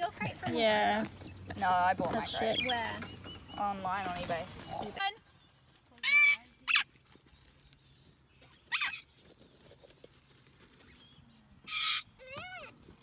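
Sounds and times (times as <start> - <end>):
parrots squawking: 2.2 - 3.7, 6.0 - 6.9, 8.6 - 9.1, 11.6 - 12.6.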